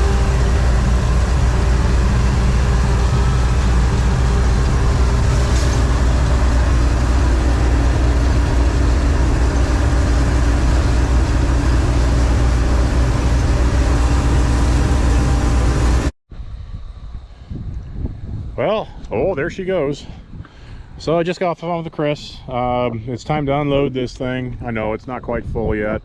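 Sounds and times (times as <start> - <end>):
combine harvester engine drone: 0.0 - 16.1.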